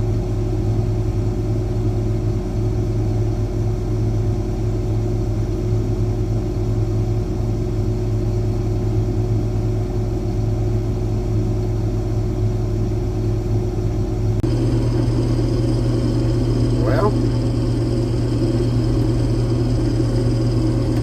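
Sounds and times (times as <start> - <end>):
combine harvester running: 14.4 - 21.0.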